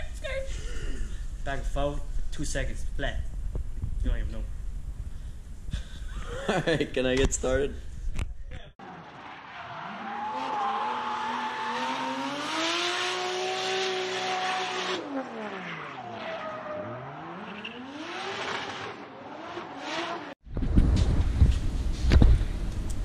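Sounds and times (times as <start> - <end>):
racing car engine revving: 8.8 - 20.4.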